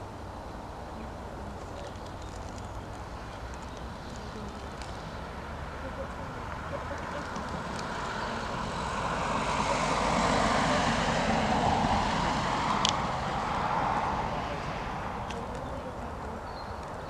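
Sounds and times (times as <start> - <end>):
jet airliner passing: 8.0 - 15.2.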